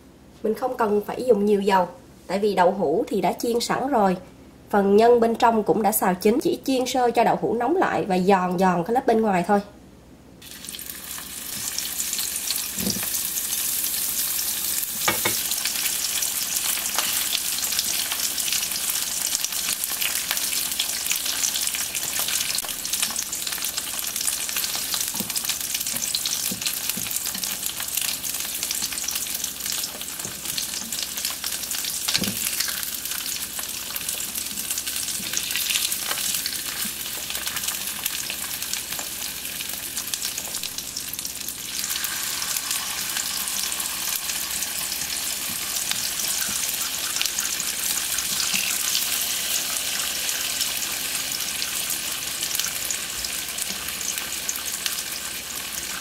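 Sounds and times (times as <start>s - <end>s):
oil sizzling in frying pan: 10.4s - 56.0s
chopsticks knocking in pan: 15.0s - 15.4s.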